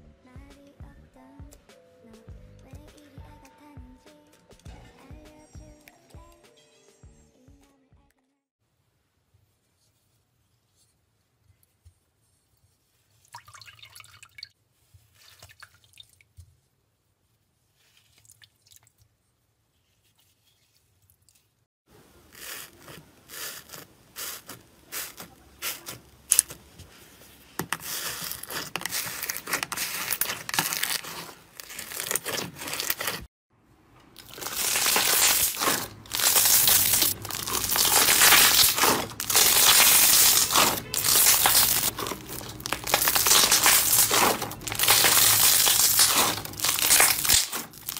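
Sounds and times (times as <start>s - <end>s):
slime crackling and tearing: 22.3s - 26.7s, 27.7s - 33.3s, 34.2s - 47.9s
hands squishing slime: 22.4s - 33.3s, 34.2s - 47.9s
slime crackling and popping: 27.8s - 33.3s, 34.2s - 47.9s.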